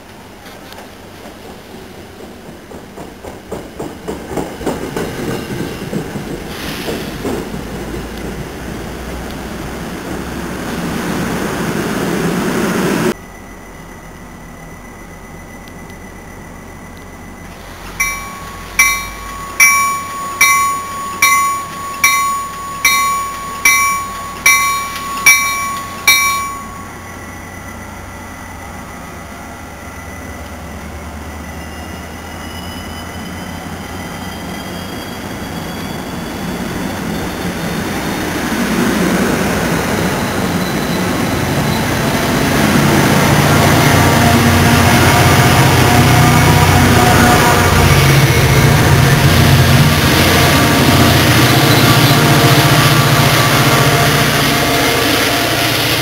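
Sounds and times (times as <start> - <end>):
train wheels rumbling: 0.0 - 56.0
train bell ringing: 13.2 - 38.2, 39.6 - 56.0.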